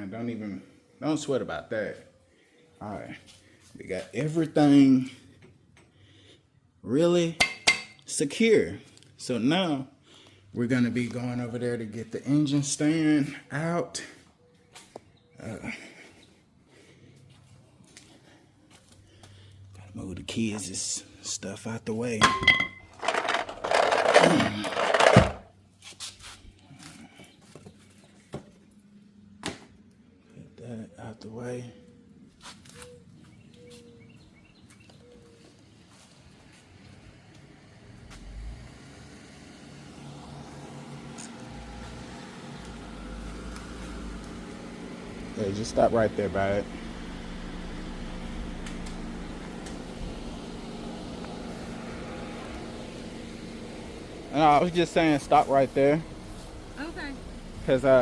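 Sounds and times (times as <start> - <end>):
car engine idling: 35.2 - 58.0.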